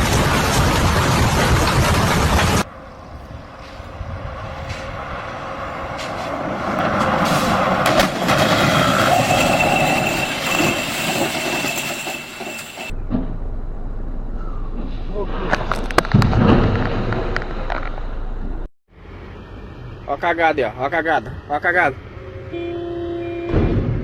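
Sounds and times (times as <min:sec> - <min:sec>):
vehicle rushing: 0:01.3 - 0:11.7.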